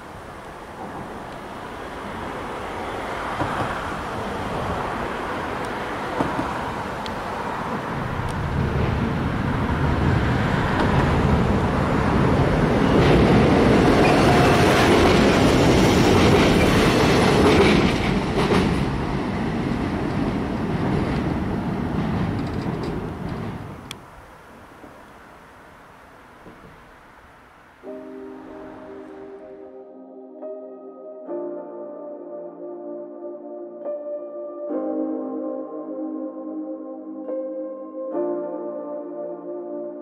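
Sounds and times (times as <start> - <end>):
train passing with wheel clatter: 0.0 - 29.5.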